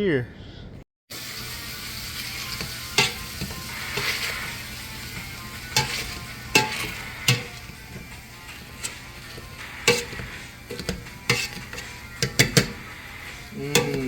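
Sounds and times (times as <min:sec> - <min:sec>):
food sizzling in a pan: 0:01.1 - 0:14.0
utensil knocking against pan: 0:05.7 - 0:08.1, 0:09.8 - 0:12.9.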